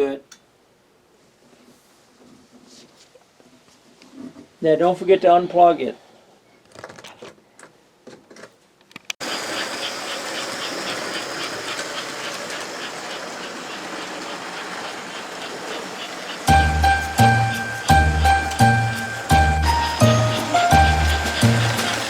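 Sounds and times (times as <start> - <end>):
regular track clicks: 8.9 - 22.0
toy train whirring on track: 9.2 - 22.0.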